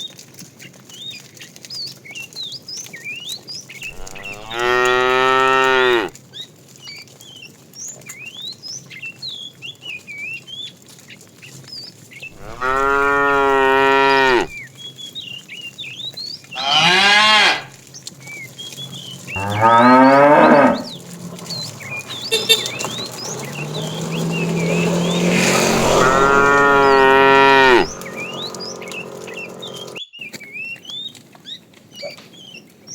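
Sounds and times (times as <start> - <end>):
small birds chirping: 0.9 - 17.2, 17.8 - 32.6
cows mooing: 3.8 - 6.1, 12.4 - 14.6, 16.6 - 17.8, 19.4 - 30.0.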